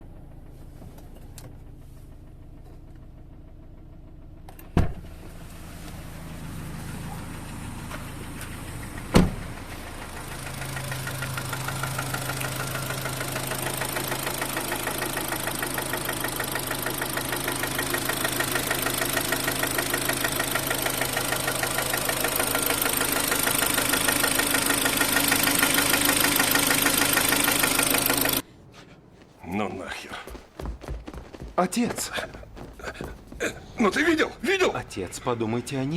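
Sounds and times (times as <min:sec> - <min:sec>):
car engine knocking: 0:00.0 - 0:28.4, 0:30.3 - 0:35.1.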